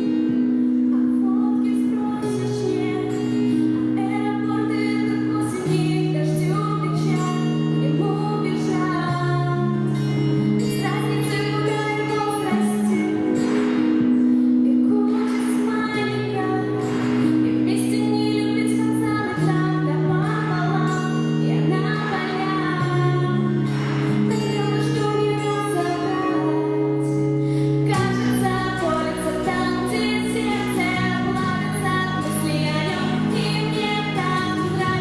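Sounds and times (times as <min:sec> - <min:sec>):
backing track chords: 0:00.0 - 0:35.0
woman singing pop ballad: 0:00.0 - 0:35.0.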